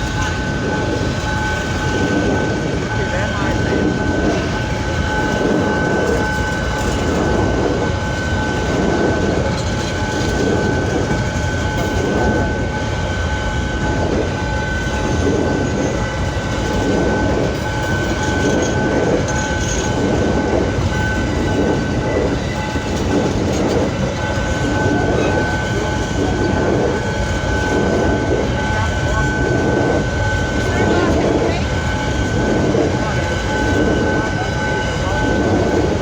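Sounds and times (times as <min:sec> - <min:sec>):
freight train wagons rumbling: 0:00.0 - 0:36.0.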